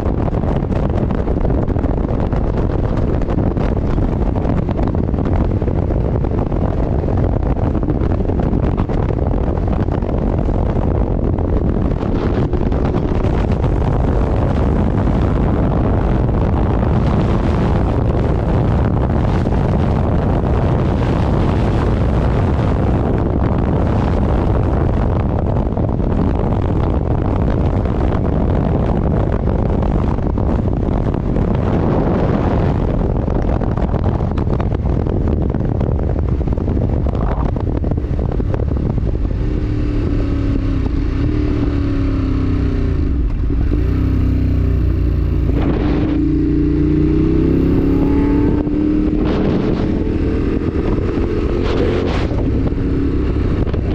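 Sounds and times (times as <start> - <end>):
motorcycle engine running: 0.0 - 53.9
wind rushing over microphone: 0.0 - 53.9.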